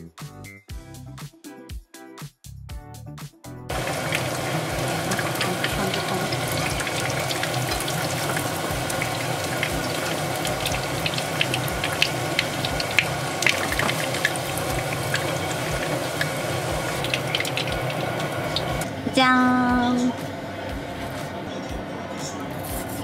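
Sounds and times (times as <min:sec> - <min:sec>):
fish sizzling in hot oil: 0:03.7 - 0:18.8.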